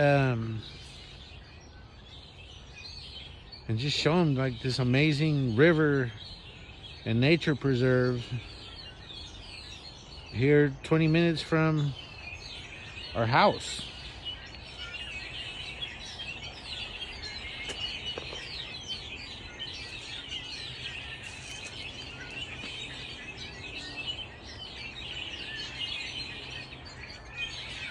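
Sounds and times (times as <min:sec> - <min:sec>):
small birds chirping: 0:00.0 - 0:27.9.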